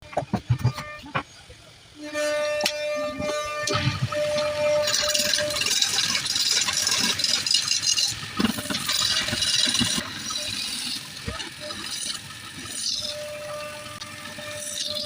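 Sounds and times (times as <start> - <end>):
scattered knocks: 0.0 - 1.2.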